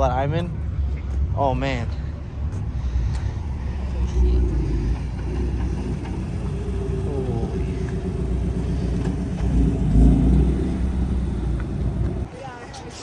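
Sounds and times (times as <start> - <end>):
car driving slowly past: 3.2 - 12.3.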